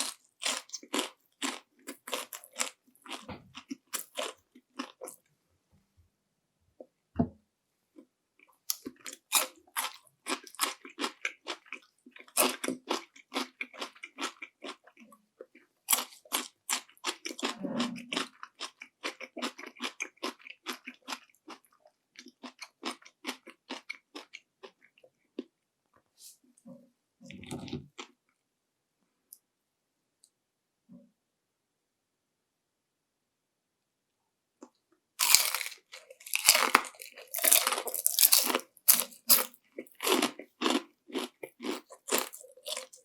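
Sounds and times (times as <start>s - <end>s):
crunchy chewing of fried food: 0.0s - 5.4s, 7.9s - 26.7s, 34.6s - 43.0s.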